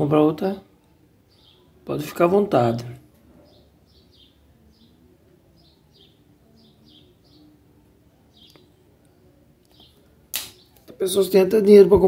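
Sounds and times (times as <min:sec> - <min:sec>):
faint bird chirps: 0:00.7 - 0:02.1, 0:02.8 - 0:11.1.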